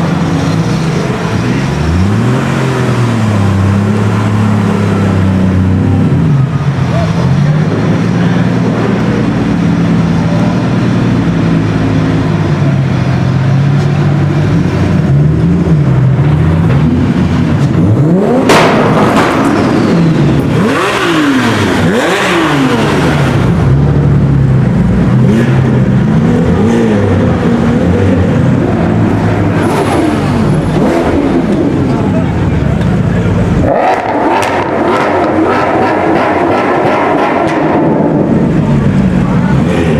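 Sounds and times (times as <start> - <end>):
sports car engine revving: 0.0 - 39.9
engine exhaust crack: 13.7 - 22.6, 28.4 - 39.9.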